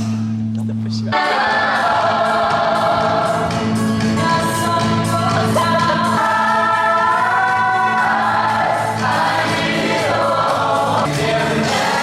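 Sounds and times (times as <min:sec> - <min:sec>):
choir singing long-held notes: 0:01.1 - 0:03.5, 0:05.6 - 0:12.0.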